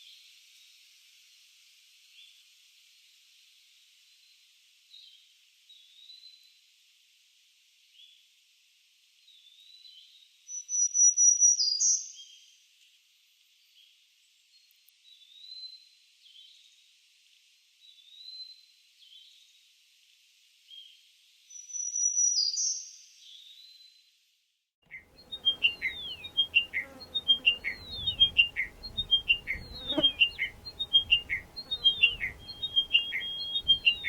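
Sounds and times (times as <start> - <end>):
bird chirping: 24.9 - 34.0
songbird singing trills: 24.9 - 34.0.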